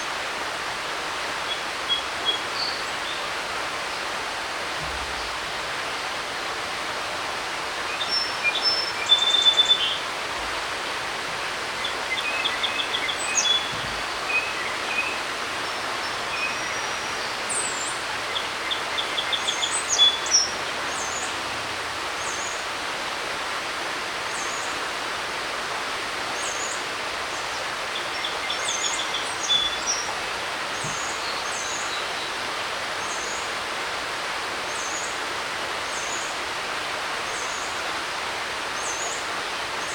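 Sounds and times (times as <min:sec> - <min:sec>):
creek rushing: 0:00.0 - 0:39.9
songbirds singing: 0:01.4 - 0:04.1, 0:07.8 - 0:21.6, 0:26.4 - 0:33.6.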